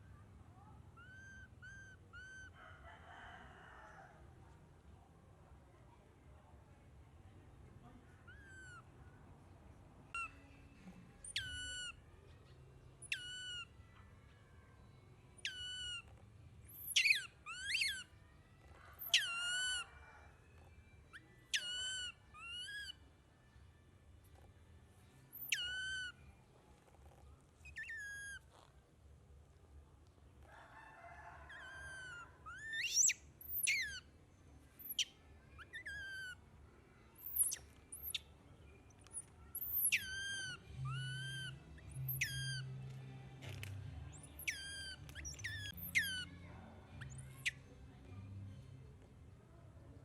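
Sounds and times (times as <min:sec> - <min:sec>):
baby monkey squealing: 0:01.0 - 0:02.6, 0:08.3 - 0:08.9, 0:10.1 - 0:10.4, 0:11.2 - 0:12.0, 0:13.0 - 0:13.8, 0:15.4 - 0:18.1, 0:18.9 - 0:20.0, 0:21.1 - 0:23.0, 0:25.3 - 0:26.2, 0:27.6 - 0:28.7, 0:31.5 - 0:34.1, 0:34.8 - 0:36.4, 0:37.2 - 0:38.2, 0:39.0 - 0:42.7, 0:43.5 - 0:46.4, 0:47.0 - 0:47.7.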